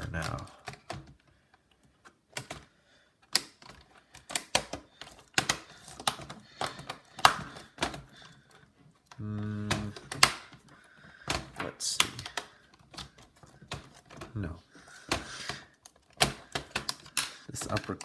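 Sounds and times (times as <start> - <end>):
plastic case parts snapping: 2.0 - 8.6, 9.6 - 14.3, 15.0 - 18.0
person humming: 9.1 - 10.2.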